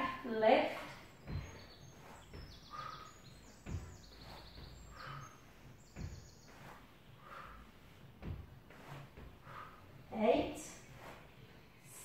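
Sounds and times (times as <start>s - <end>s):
birdsong chirps and trills: 0.3s - 12.0s
soft low thumps on mat: 0.6s - 11.7s
breathy exhale: 6.6s - 7.8s.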